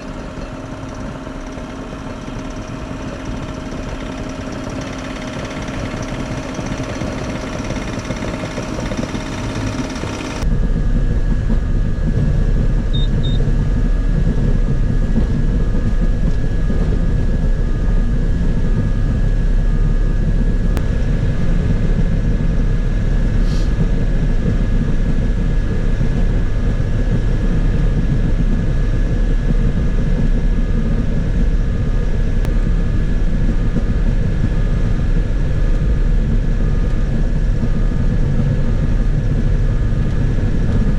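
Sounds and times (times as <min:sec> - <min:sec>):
excavator diesel engine running: 0:00.0 - 0:40.9
high whine: 0:00.0 - 0:40.9
faint repeating beep: 0:12.9 - 0:13.4.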